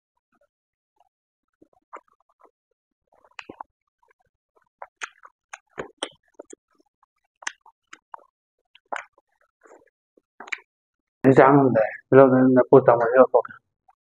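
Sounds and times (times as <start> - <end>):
wet chewing and lip smacks: 1.9 - 2.5, 3.2 - 10.7.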